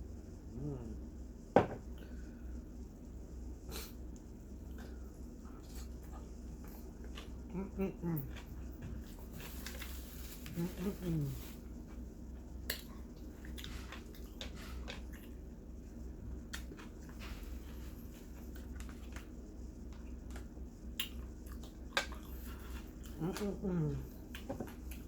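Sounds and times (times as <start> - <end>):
steady low hum: 0.0 - 25.0
person chewing food: 3.7 - 10.0, 11.8 - 25.0.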